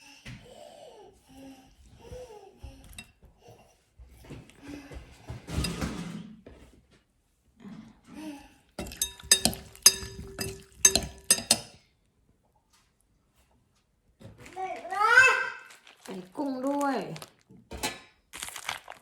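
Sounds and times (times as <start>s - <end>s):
spoon clinking against bowl: 8.8s - 11.8s.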